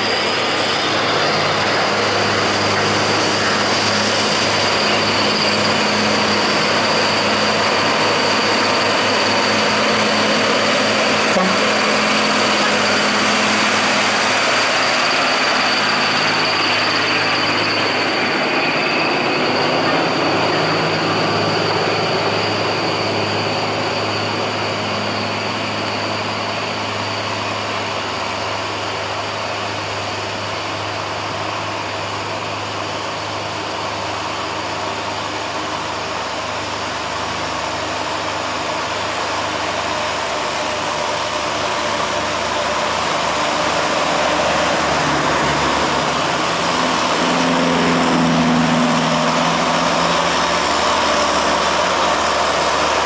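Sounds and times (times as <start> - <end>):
truck diesel engine under load: 0.0 - 53.0.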